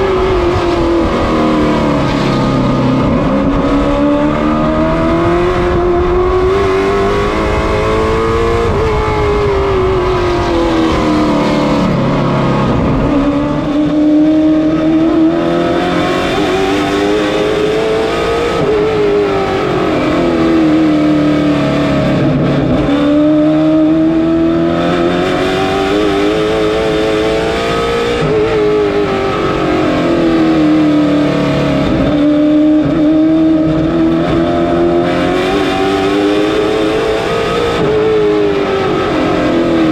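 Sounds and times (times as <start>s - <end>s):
race car engine: 0.0s - 39.9s.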